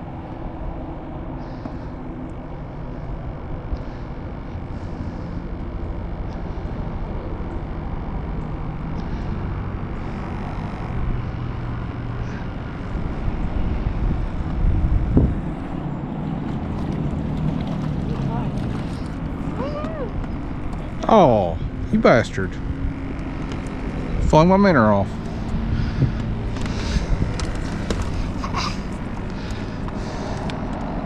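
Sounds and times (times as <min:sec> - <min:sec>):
boat motor droning: 0:00.0 - 0:31.0.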